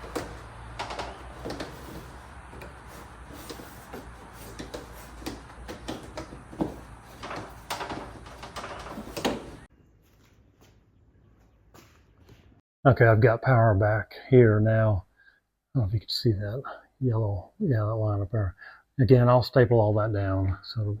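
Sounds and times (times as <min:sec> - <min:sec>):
knocks and clicks of tools: 0:00.0 - 0:09.7
cable rustling: 0:00.0 - 0:10.4.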